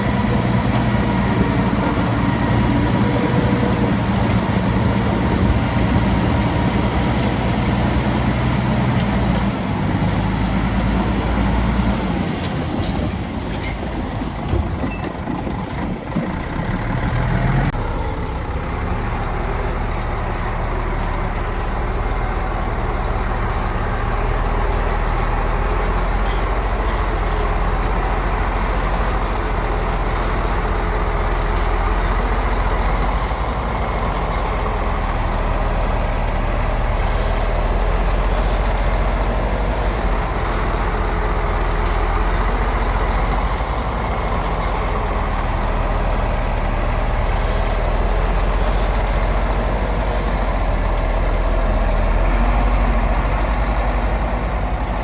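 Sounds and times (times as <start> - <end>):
heavy diesel engine rumbling: 0.0 - 55.0.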